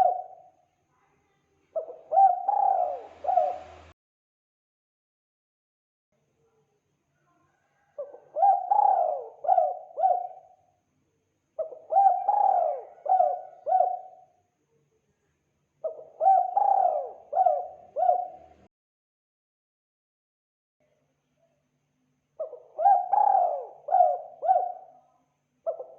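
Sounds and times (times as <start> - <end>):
dove cooing: 0.0 - 0.5, 1.8 - 3.9, 7.9 - 10.6, 11.6 - 14.3, 15.8 - 18.7, 22.4 - 25.0, 25.6 - 25.9.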